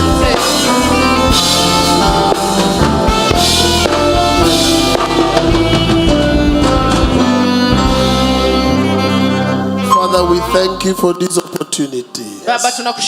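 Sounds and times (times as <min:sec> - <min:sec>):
drum kit: 0:00.0 - 0:09.1
bass: 0:00.0 - 0:11.2
guitar: 0:00.0 - 0:11.8
sustained keyboard chords: 0:00.0 - 0:12.2.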